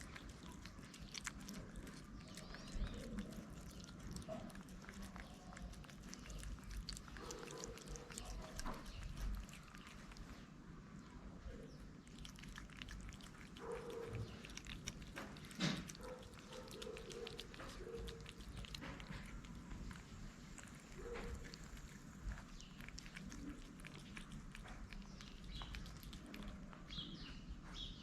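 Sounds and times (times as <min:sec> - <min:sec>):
cats chewing food: 0:00.0 - 0:27.9.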